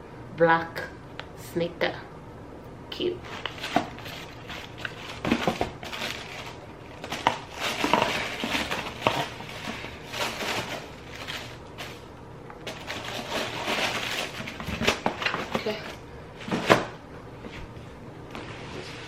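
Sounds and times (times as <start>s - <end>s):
packaging rustling and crinkling: 3.2s - 16.9s.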